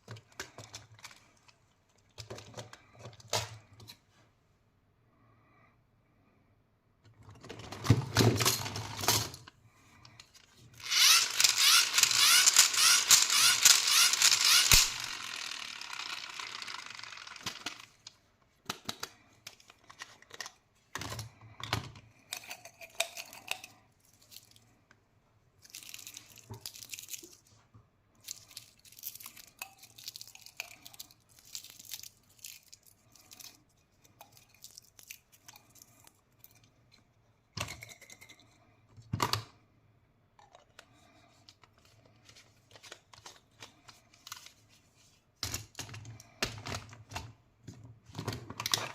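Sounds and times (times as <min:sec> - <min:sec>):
candy wrappers tearing and crinkling: 0:10.8 - 0:17.8, 0:25.6 - 0:27.5, 0:28.2 - 0:36.6.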